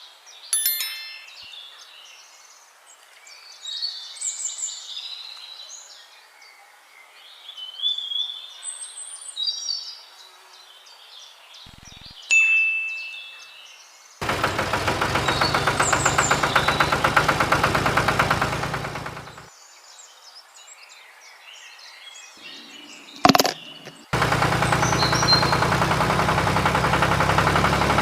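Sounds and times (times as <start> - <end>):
bell-like ding: 0.6 - 1.8, 12.3 - 13.6
birds chirping and singing: 21.0 - 25.6.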